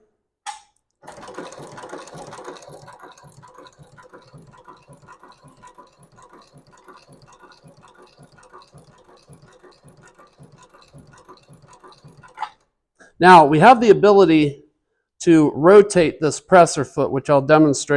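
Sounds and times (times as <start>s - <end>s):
sewing machine clacking: 1.0s - 12.7s.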